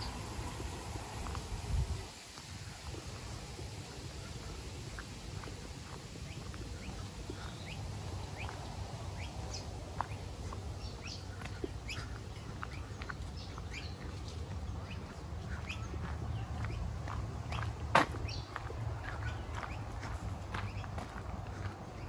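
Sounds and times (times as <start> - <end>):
birds chirping: 0.0 - 22.0
steady low rumble: 0.0 - 22.0.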